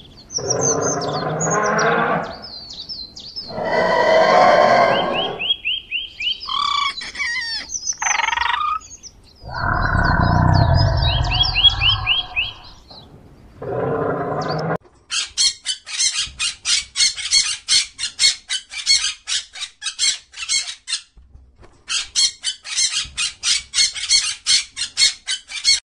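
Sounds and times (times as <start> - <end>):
bird squawking: 3.5 - 5.6, 6.2 - 12.9
loud low sound: 9.4 - 12.8.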